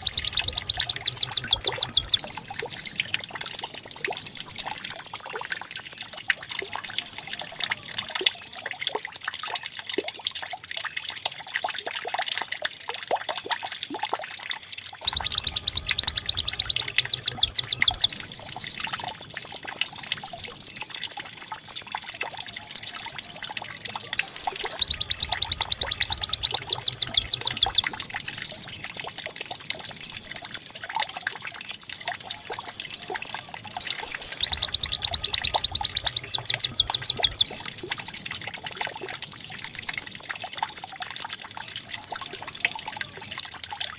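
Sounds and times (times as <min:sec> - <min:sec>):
faint soft chirps: 0:00.0 - 0:05.1, 0:15.1 - 0:21.0, 0:22.5 - 0:30.6, 0:32.2 - 0:40.2
recorded bird song: 0:00.0 - 0:07.9, 0:15.0 - 0:43.1.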